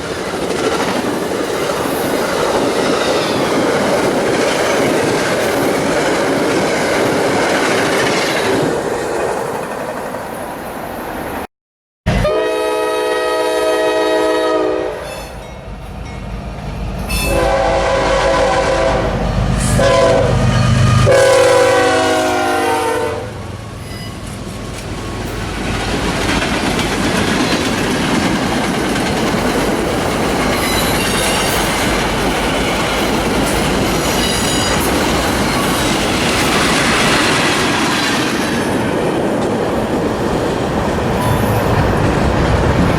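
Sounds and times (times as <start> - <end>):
locomotive air horn blasts: 12.1 - 15.4, 17.1 - 23.6
train wheels clattering: 24.1 - 42.9.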